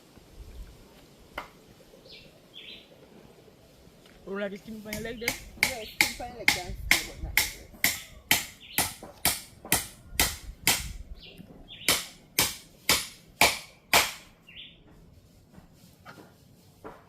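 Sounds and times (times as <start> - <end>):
birds chirping: 1.5 - 10.3, 11.0 - 12.3, 14.4 - 15.0.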